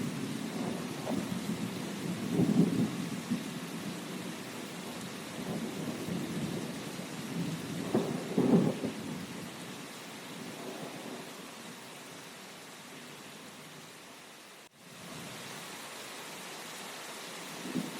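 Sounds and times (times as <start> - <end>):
thunder rumbling: 0.0 - 9.3, 17.6 - 17.9
rain hissing: 0.0 - 17.9.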